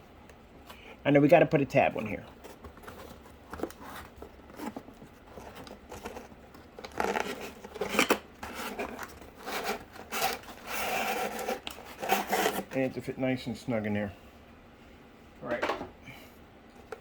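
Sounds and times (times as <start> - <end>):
cardboard scraping and rubbing: 2.4 - 12.9.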